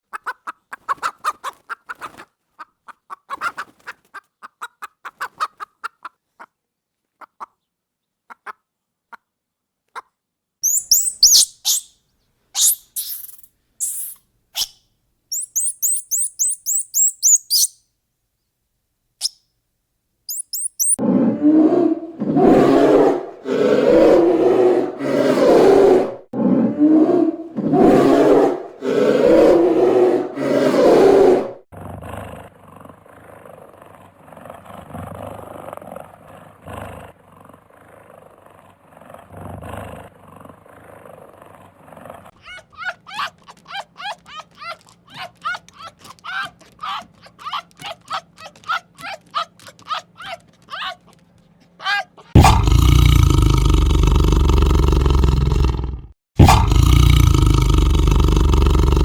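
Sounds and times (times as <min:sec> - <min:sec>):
loud harsh low animal calls: 0:10.6 - 0:11.9, 0:15.3 - 0:17.7, 0:20.3 - 0:31.6, 0:51.8 - 0:55.8, 0:56.4 - 0:59.0
soft rapid clicking calls: 0:10.6 - 0:11.9, 0:12.6 - 0:17.8, 0:20.3 - 0:21.0, 0:42.9 - 0:51.7
high quick bird chirps: 0:10.6 - 0:12.0, 0:12.6 - 0:17.8, 0:20.3 - 0:21.0.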